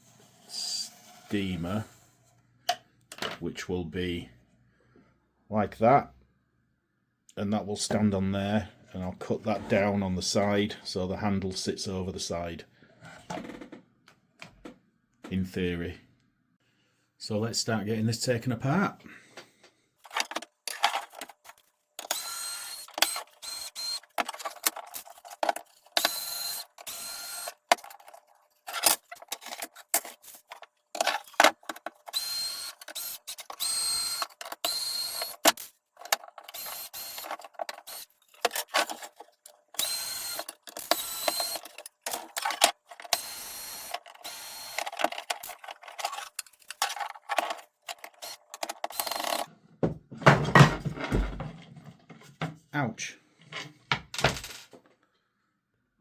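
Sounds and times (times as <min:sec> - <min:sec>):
cordless drill whining: 0:22.0 - 0:25.2, 0:26.0 - 0:28.0, 0:32.0 - 0:35.7, 0:36.4 - 0:39.0, 0:39.8 - 0:42.4, 0:43.1 - 0:45.6, 0:48.0 - 0:49.5.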